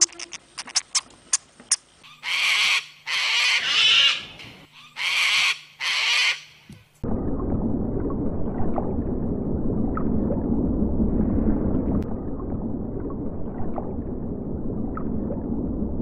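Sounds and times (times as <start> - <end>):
low rumble of moving water: 6.8 - 16.0.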